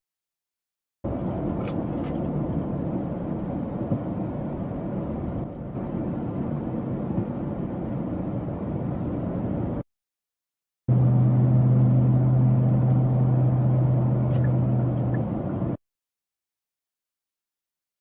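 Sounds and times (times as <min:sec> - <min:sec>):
car road and engine noise: 0:01.0 - 0:09.8, 0:10.9 - 0:15.8.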